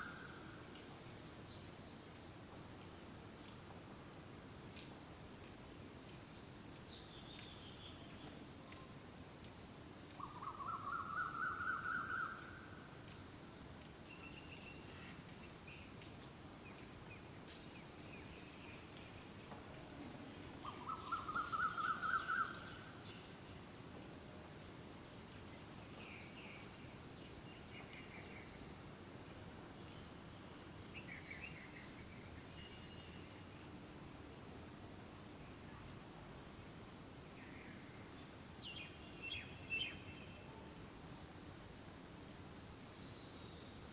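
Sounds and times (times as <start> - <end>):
soft bird chirps: 10.1 - 24.3, 29.6 - 33.8, 42.4 - 43.9.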